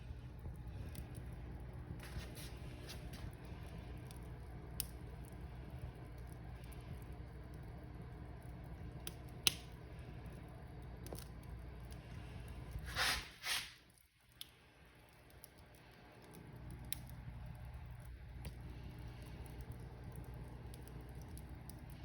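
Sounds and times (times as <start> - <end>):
fire crackling pops: 0.0 - 22.0
wood fire rumbling: 0.0 - 22.0
fire hissing bursts: 12.2 - 13.9.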